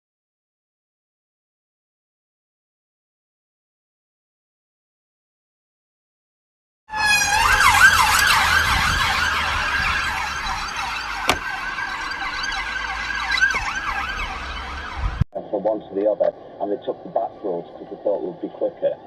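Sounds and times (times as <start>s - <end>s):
emergency vehicle siren wailing: 6.9s - 15.2s.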